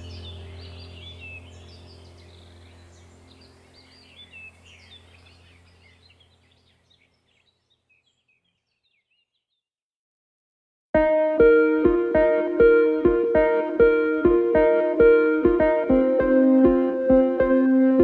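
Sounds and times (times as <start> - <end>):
low steady drone: 0.0 - 5.8
birds chirping and twittering: 0.0 - 9.6.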